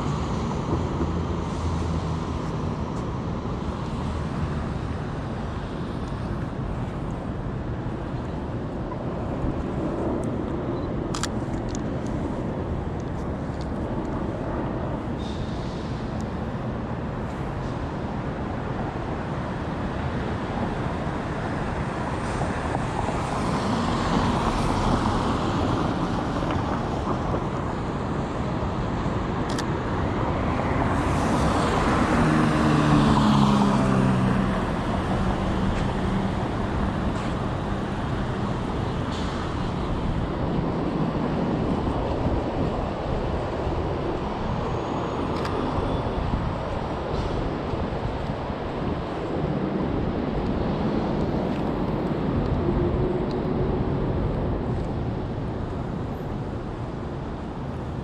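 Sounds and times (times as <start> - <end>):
street traffic rumble: 0.0 - 58.0
passing vehicle hum: 29.9 - 58.0.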